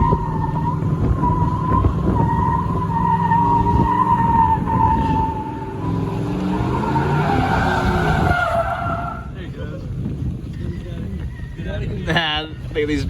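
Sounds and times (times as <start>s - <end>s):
tyres squealing: 0.0s - 9.4s
car engine running hard: 0.0s - 10.1s.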